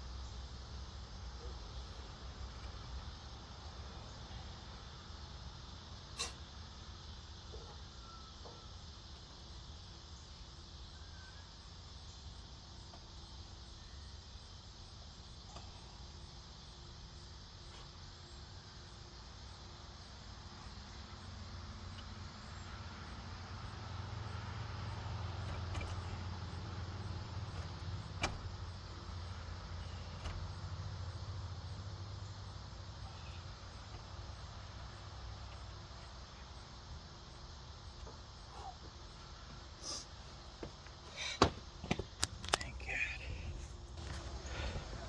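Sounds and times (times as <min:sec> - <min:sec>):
vehicle engine rumble: 0:20.4 - 0:45.0.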